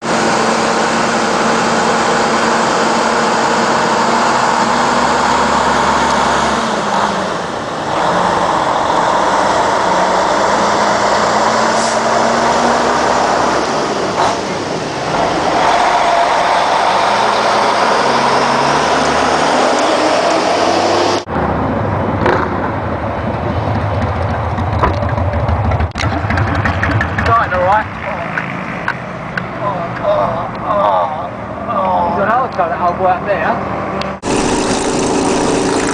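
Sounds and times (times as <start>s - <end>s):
motorcycle engine running: 22.2s - 28.6s, 34.2s - 35.9s.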